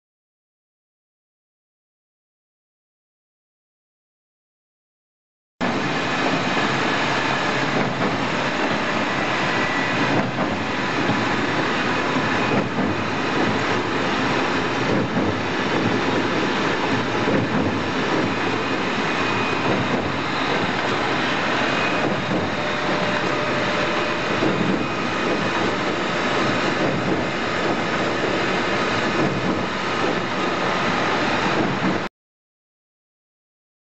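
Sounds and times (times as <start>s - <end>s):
automatic lathe running: 5.7s - 32.0s.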